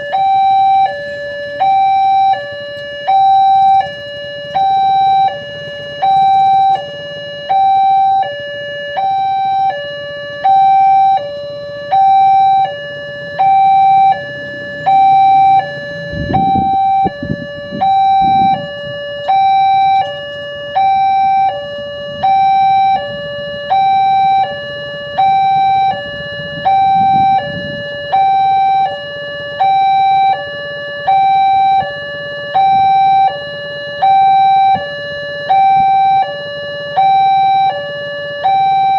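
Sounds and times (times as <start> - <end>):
two-tone crossing alarm: 0.0 - 38.9
low rumbles: 13.2 - 19.6.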